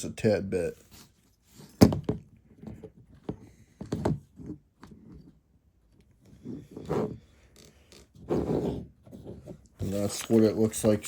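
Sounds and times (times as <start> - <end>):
plastic bricks rubbing and rustling: 8.0 - 11.0.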